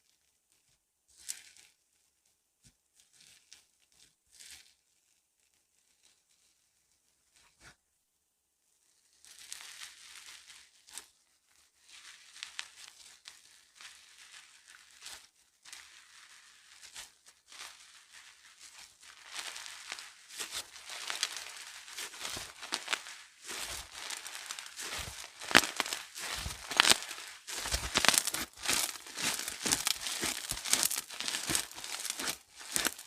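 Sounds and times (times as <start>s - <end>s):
slime crackling and popping: 11.9s - 33.0s.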